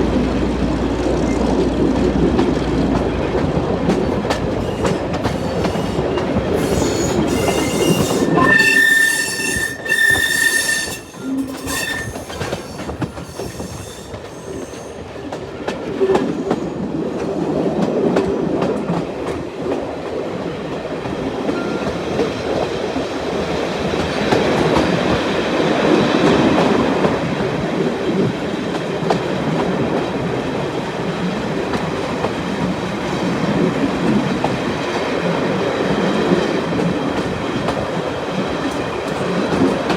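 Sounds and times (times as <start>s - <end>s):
train rumbling and clattering: 0.0s - 39.9s
train wheels squealing: 4.5s - 15.2s.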